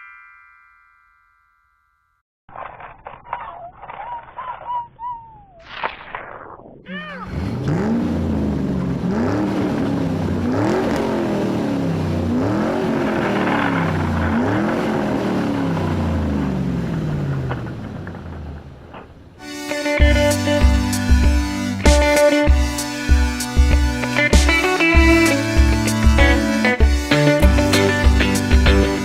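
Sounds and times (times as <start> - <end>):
monster truck engine revving: 7.0 - 19.4.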